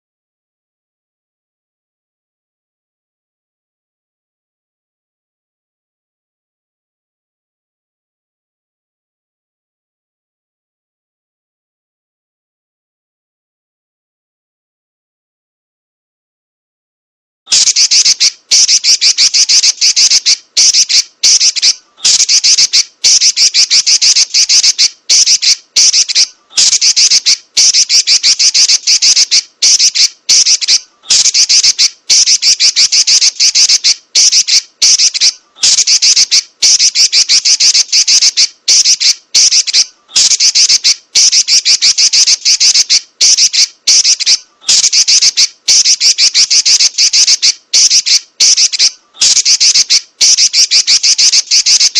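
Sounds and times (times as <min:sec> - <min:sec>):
bird giving shrill rapid chatter: 0:17.5 - 0:51.9.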